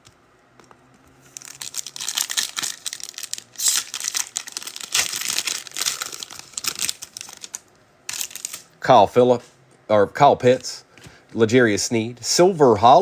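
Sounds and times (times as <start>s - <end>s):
foil wrapper crinkling: 1.2s - 8.7s.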